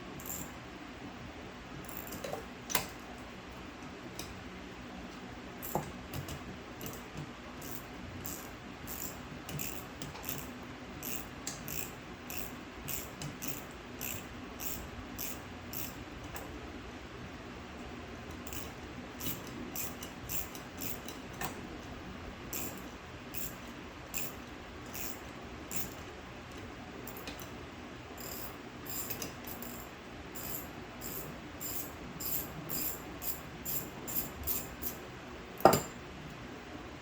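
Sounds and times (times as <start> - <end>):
socket ratchet clicking: 0.2 - 0.5, 1.8 - 2.9, 5.6 - 16.0, 18.4 - 21.5, 22.5 - 26.0, 27.0 - 27.5, 28.2 - 35.0.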